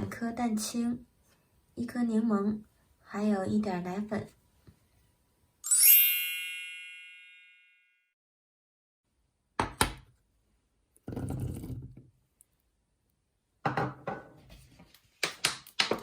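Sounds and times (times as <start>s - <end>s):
bright ringing chime: 5.6s - 8.1s.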